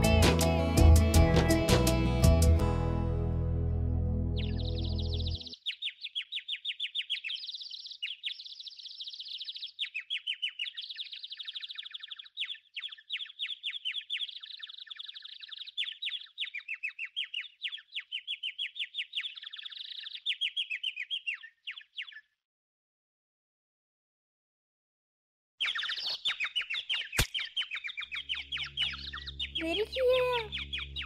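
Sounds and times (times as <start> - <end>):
birds chirping and trilling: 0.8 - 1.7, 4.3 - 22.4, 25.6 - 31.0.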